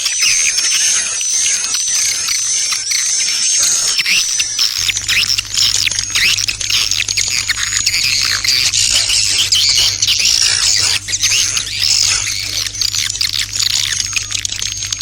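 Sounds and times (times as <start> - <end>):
swiftlets twittering and chirping: 0.0 - 15.0
steady low hum: 4.8 - 15.0.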